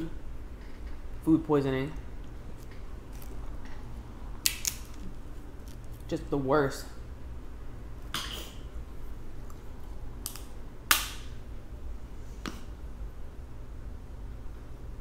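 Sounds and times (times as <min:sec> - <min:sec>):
crab shells cracking: 0:04.4 - 0:05.9.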